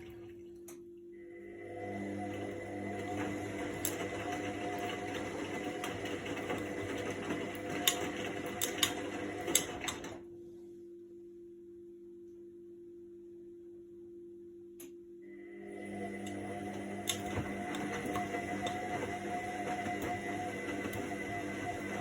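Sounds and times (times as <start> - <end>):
washing machine drum whirring: 0.0 - 10.3, 15.2 - 22.0
washing machine clicks: 6.6 - 10.2, 16.2 - 22.0.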